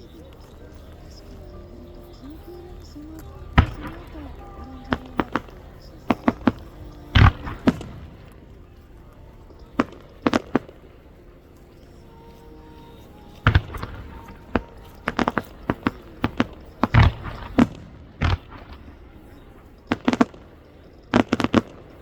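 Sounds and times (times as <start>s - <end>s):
firework shells bursting: 3.5s - 11.0s, 13.4s - 22.0s.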